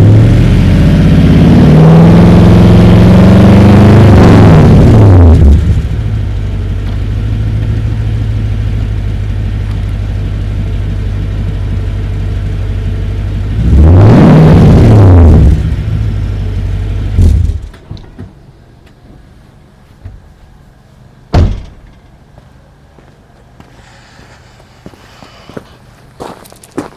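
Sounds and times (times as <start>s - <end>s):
truck engine idling and revving: 0.0s - 17.9s
sharp thump: 17.2s - 18.4s, 21.3s - 22.0s.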